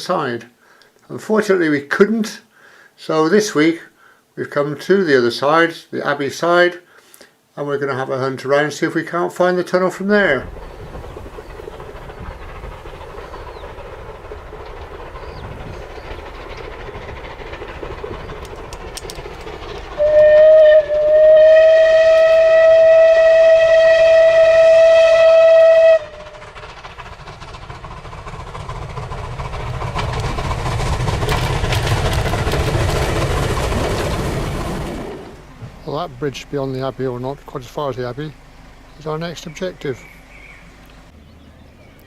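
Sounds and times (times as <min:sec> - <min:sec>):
train rumble: 0:07.7 - 0:42.0
steam locomotive whistle: 0:20.0 - 0:26.4.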